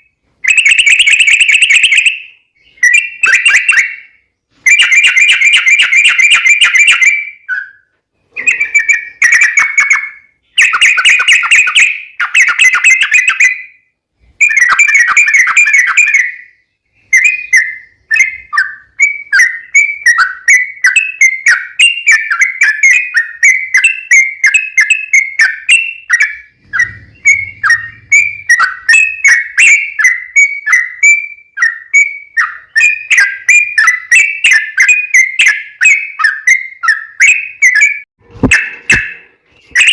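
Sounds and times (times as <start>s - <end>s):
bird song: 0.0s - 39.9s
rapid bird chattering: 8.3s - 13.6s.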